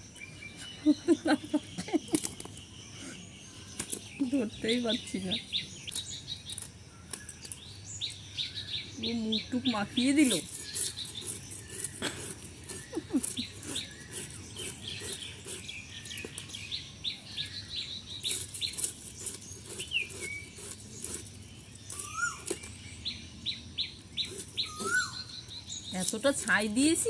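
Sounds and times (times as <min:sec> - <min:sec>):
small birds chirping: 0:00.0 - 0:27.0
blade cutting fish: 0:10.2 - 0:16.4, 0:18.3 - 0:22.7.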